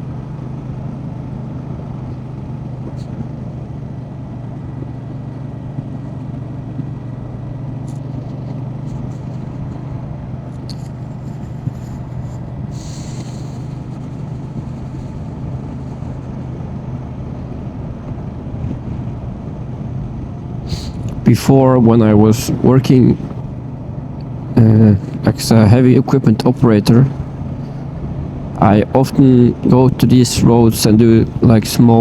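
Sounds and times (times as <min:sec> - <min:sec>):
motorcycle engine cruising: 0:00.0 - 0:32.0
road and wind noise: 0:00.0 - 0:32.0
brief hiss: 0:10.6 - 0:14.1, 0:20.7 - 0:21.1.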